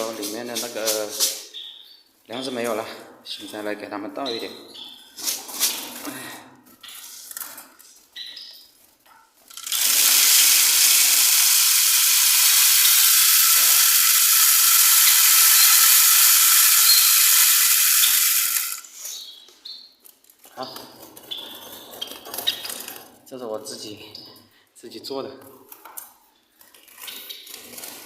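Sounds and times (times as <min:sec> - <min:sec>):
birdseed pouring into dish: 0:09.5 - 0:18.9.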